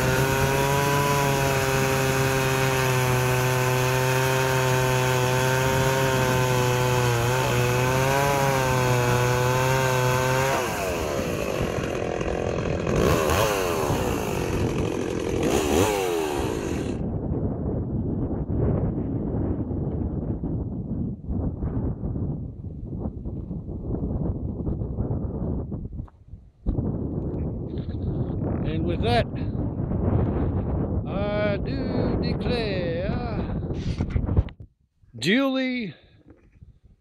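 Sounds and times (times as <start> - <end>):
chainsaw running: 0.0 - 17.0.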